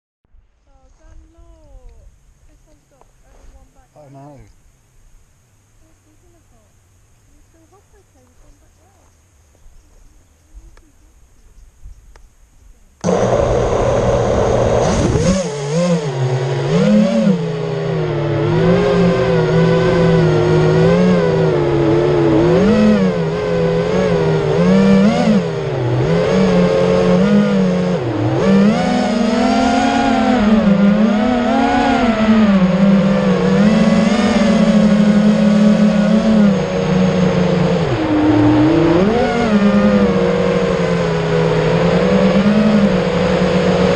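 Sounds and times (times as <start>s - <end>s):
quadcopter motors buzzing whine: 13.0s - 43.9s.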